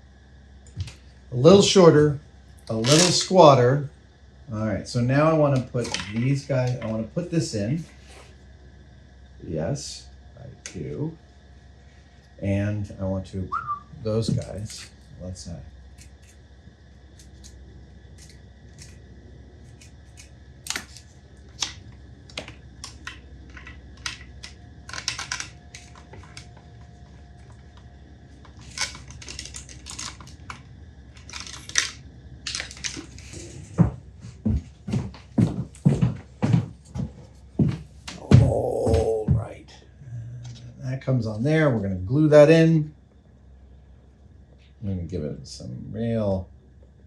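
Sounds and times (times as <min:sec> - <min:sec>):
faint steady hum: 0:00.0 - 0:47.0
clicks and taps of parts: 0:21.6 - 0:26.6.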